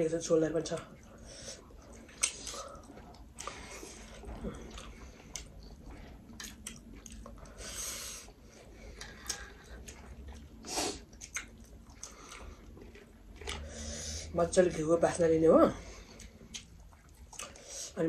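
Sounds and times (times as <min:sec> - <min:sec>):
person chewing: 0:01.0 - 0:14.2, 0:15.8 - 0:18.0.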